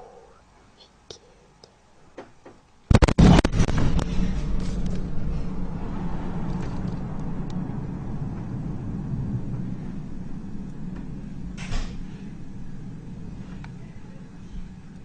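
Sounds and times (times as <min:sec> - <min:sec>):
explosion rumble: 0:02.9 - 0:14.9.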